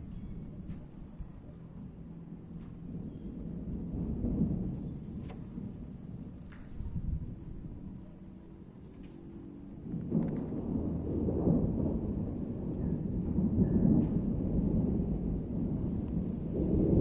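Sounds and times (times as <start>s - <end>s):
thunder rumbling: 0.0s - 17.0s.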